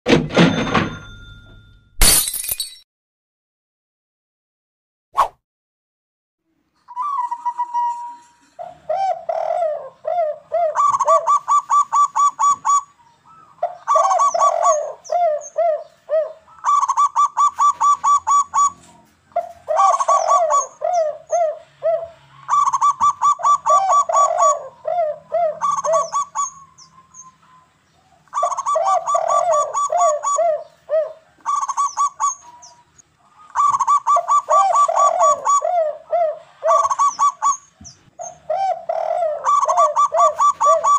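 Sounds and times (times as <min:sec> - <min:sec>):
doves cooing: 0:08.6 - 0:27.6, 0:28.2 - 0:40.9.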